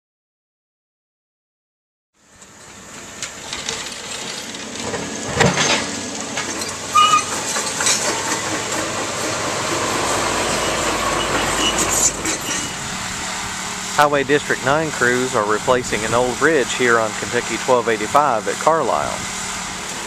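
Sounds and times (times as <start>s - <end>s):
heavy machinery running: 2.4s - 20.0s
metal knocks and clanks: 3.5s - 12.8s
short squeal: 6.9s - 8.0s, 9.9s - 12.8s.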